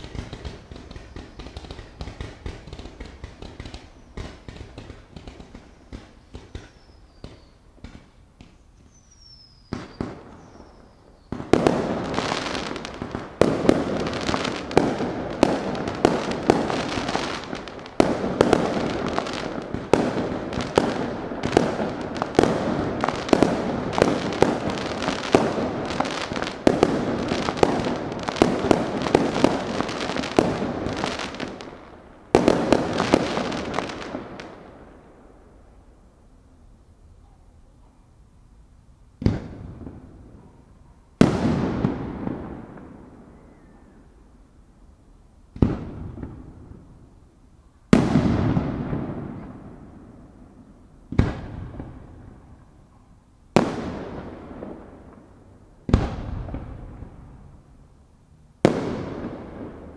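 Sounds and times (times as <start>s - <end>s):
firework bangs: 0.0s - 35.0s, 39.2s - 40.6s, 41.2s - 43.6s, 45.5s - 47.0s, 47.9s - 52.6s, 53.5s - 57.6s, 58.6s - 59.9s
firework crackling: 0.0s - 35.8s, 47.9s - 52.7s, 53.5s - 57.9s, 58.6s - 59.9s
firework falling whistle: 8.5s - 11.6s.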